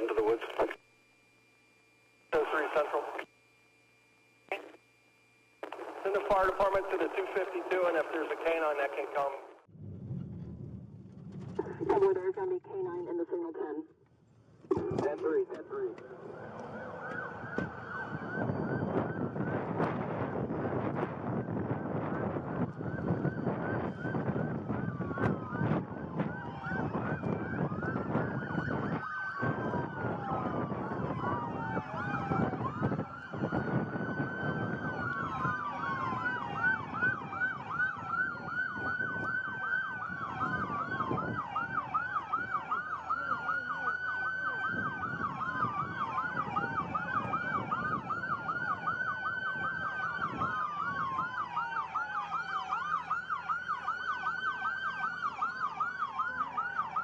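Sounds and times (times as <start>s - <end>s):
wailing siren: 0.0s - 9.6s, 14.8s - 57.0s
yelping siren: 16.0s - 57.0s.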